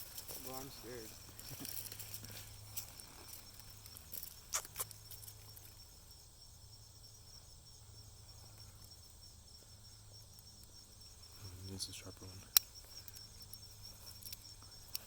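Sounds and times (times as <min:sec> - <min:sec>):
insects chirping: 0:00.0 - 0:15.0
sharp clicks: 0:04.2 - 0:05.2.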